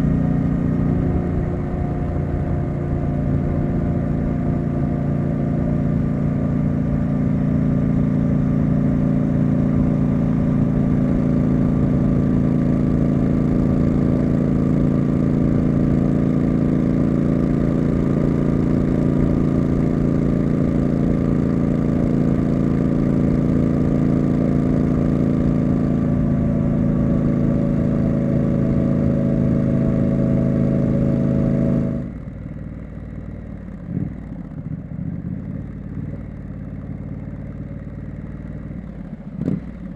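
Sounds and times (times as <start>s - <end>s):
low rumble: 0.0s - 5.6s
motorcycle engine and exhaust: 0.0s - 39.9s.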